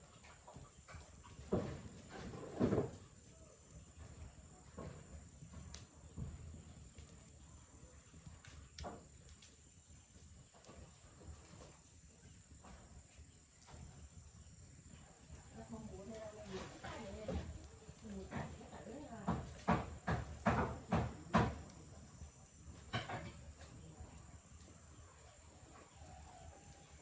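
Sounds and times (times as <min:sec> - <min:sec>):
light knocks and rustles: 0:00.2 - 0:03.2.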